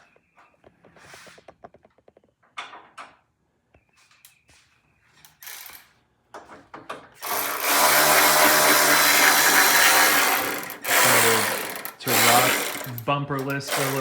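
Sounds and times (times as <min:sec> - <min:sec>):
handheld power tool running: 0:07.2 - 0:14.0.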